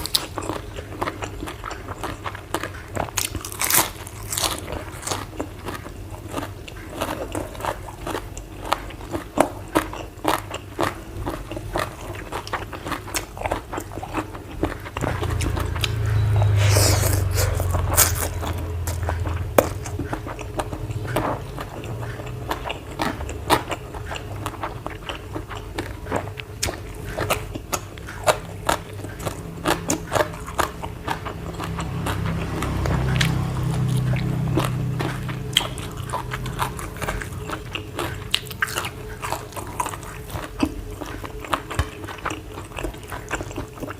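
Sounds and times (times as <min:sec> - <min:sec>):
chewing and crunching food: 0:00.0 - 0:43.9
low hum: 0:15.0 - 0:23.4, 0:27.2 - 0:41.4.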